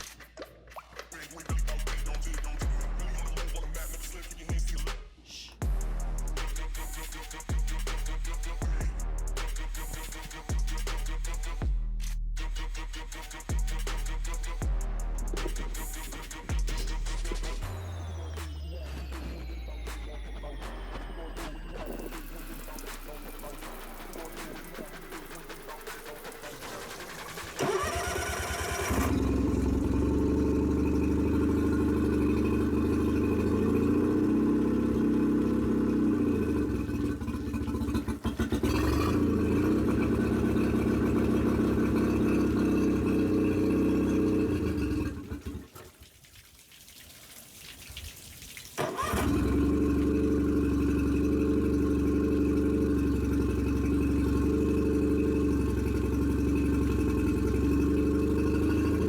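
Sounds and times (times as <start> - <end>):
outboard motor cranking and running: 21.7 - 45.8, 48.8 - 59.0.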